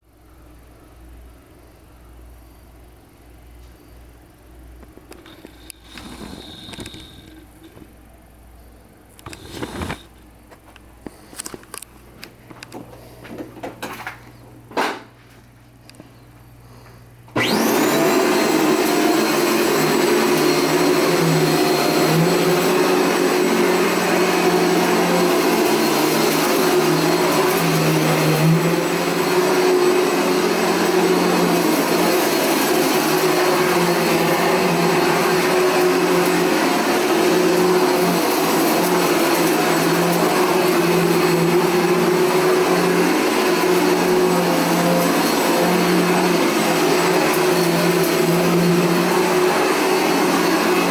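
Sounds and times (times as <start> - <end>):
vacuum cleaner running on rug: 5.1 - 7.8, 9.2 - 10.1, 17.4 - 50.9.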